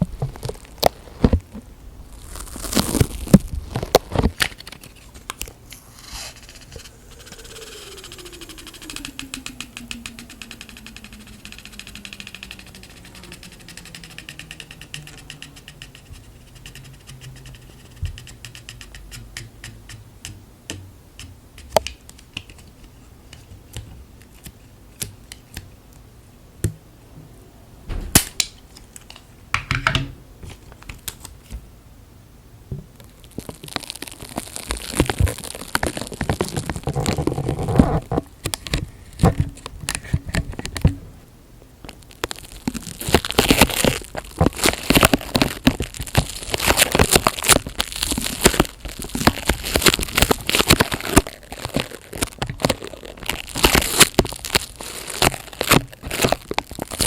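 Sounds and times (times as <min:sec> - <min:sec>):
plastic crinkling and rustling: 0:00.0 - 0:07.4, 0:32.9 - 0:40.9, 0:41.8 - 0:57.0.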